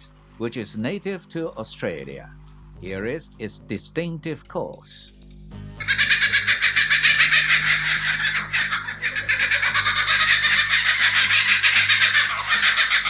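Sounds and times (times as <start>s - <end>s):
kookaburra laughing: 5.8s - 13.0s.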